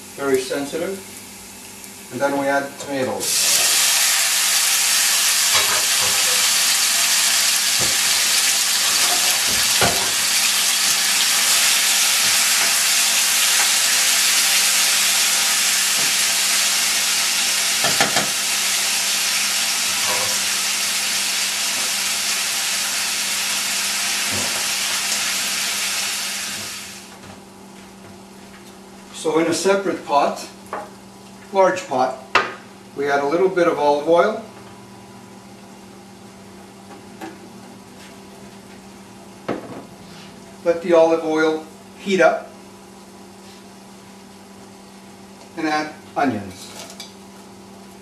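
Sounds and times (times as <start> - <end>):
tomatoes sizzling in oil: 3.2 - 27.2.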